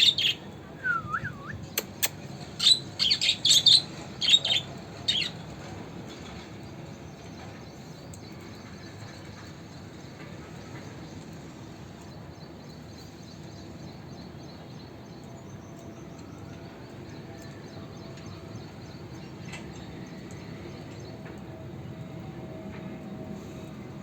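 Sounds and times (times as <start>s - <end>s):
low rumbling background noise: 0.0s - 24.0s.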